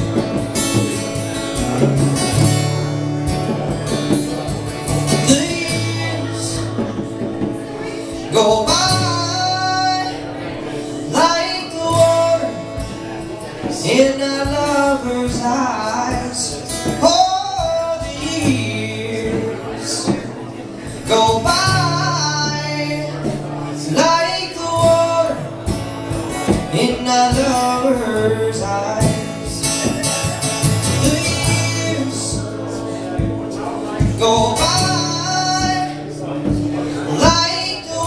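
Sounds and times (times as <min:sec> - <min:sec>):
low bass notes: 0:00.0 - 0:07.9
plucked guitar: 0:00.0 - 0:38.0.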